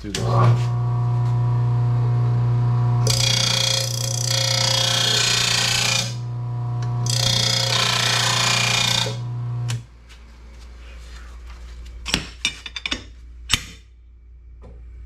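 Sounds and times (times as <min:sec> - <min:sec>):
sharpener motor humming: 0:00.2 - 0:09.8.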